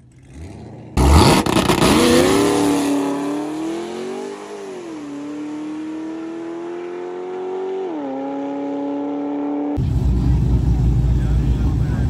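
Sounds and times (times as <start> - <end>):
car engine at full throttle: 0.0 - 12.0.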